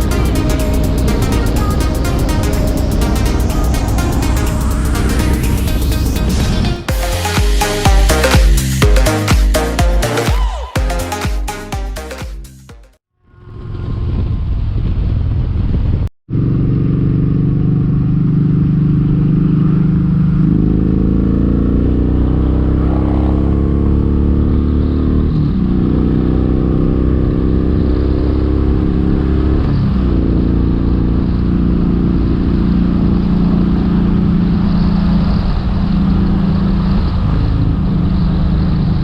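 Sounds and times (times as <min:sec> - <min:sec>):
motorcycle engine running: 0:00.0 - 0:10.9, 0:11.5 - 0:24.8.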